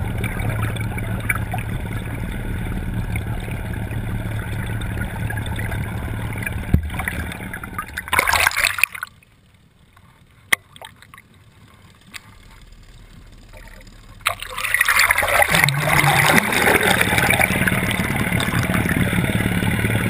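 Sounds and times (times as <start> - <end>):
rushing water: 0.0 - 9.4, 13.5 - 20.0
boat motor hum: 0.0 - 20.0
muffled underwater sound: 0.0 - 20.0
loud splash into water: 6.7 - 9.0, 14.3 - 19.1.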